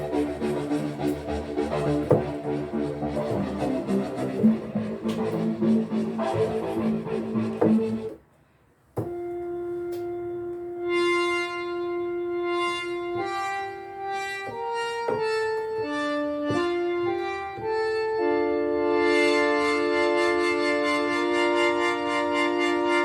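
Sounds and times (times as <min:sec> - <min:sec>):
synthesizer playing sustained chords: 0:00.0 - 0:08.2, 0:09.1 - 0:23.0
note onset clicks: 0:09.0 - 0:18.4.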